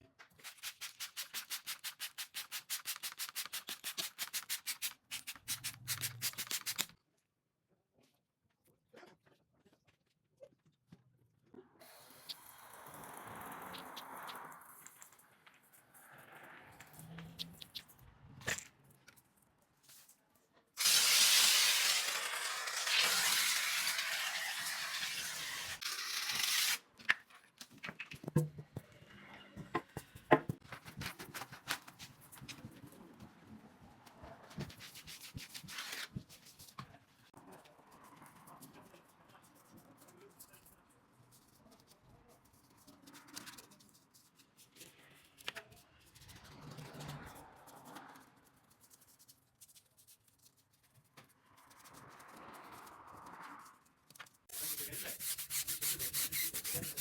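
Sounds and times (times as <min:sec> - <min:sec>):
fast back-and-forth scrubbing: 0:00.4 - 0:06.2, 0:20.8 - 0:26.8, 0:54.5 - 0:57.0.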